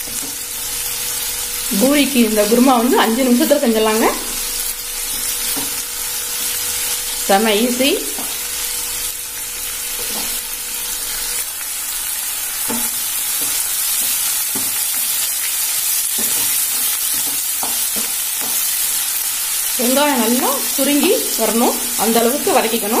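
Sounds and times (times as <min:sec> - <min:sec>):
vegetables sizzling in oil: 0:00.0 - 0:23.0.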